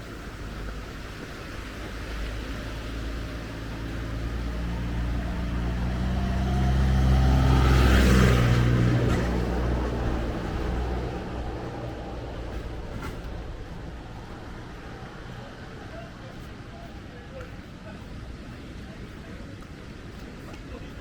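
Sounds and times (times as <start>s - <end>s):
vehicle engine passing by: 1.6s - 17.1s.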